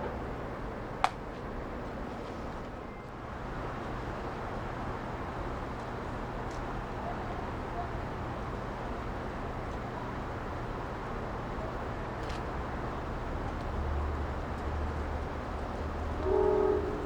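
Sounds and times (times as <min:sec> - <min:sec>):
diesel locomotive rumbling: 0:00.0 - 0:17.0
locomotive horn blast: 0:16.2 - 0:17.0.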